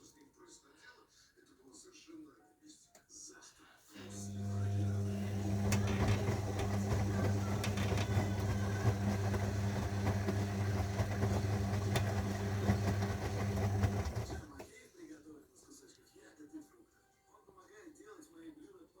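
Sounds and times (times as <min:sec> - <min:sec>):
washing machine motor humming: 0:04.0 - 0:14.7.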